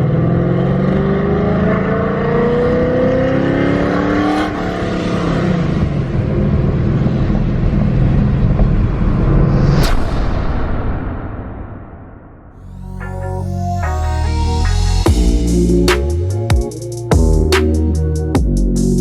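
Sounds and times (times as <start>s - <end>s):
car engine accelerating hard: 0.0s - 9.4s
road noise: 1.6s - 10.0s.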